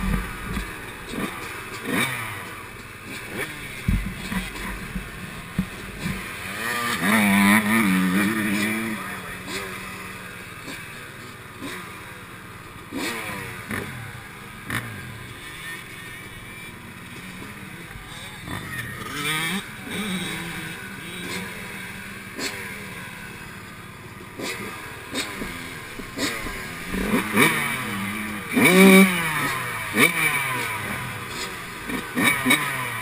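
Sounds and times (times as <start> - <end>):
two-stroke motocross engine revving: 0.0 - 33.0
bike knocks and clatter: 3.4 - 6.6.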